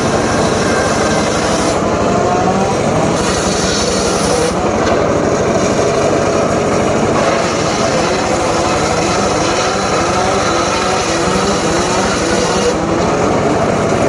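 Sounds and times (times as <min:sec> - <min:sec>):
circular saw blade hissing: 0:00.0 - 0:04.7, 0:07.1 - 0:13.0
engine running under load: 0:00.0 - 0:14.0.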